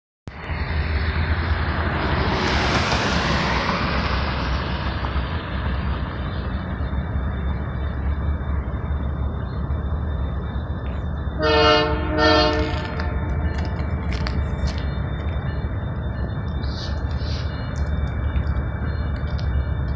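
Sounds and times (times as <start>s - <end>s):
train rumbling past: 0.3s - 19.9s
locomotive air horn blasts: 11.4s - 13.3s.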